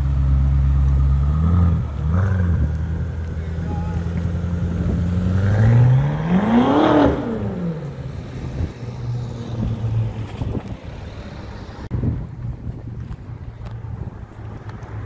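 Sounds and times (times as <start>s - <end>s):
car accelerating hard: 0.0s - 11.8s
low engine hum: 0.0s - 15.0s.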